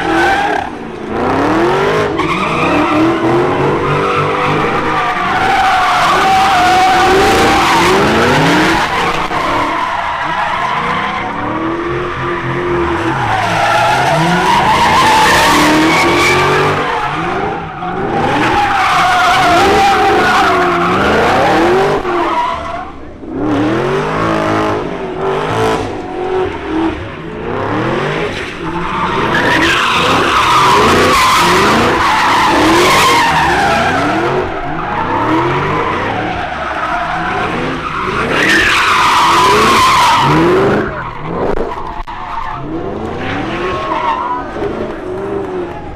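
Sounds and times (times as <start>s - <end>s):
car engines revving hard: 0.0s - 45.9s
tyres squealing: 2.1s - 23.1s, 28.6s - 42.7s.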